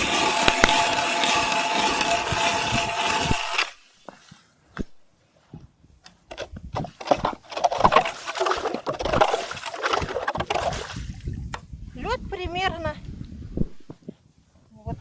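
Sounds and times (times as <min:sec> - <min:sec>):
ice and slush clattering: 0:00.0 - 0:03.8, 0:06.9 - 0:11.1
sharp clicks: 0:00.4 - 0:03.8.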